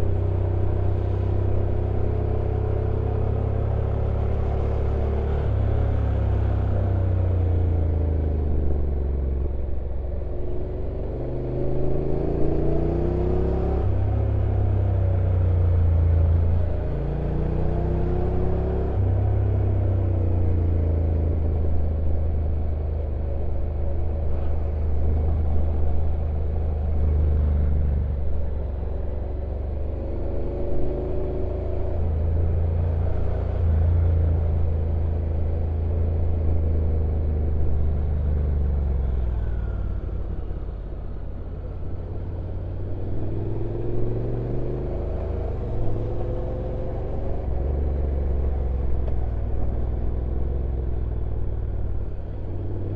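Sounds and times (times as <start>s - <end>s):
motorcycle engine revving: 41.6s - 52.9s.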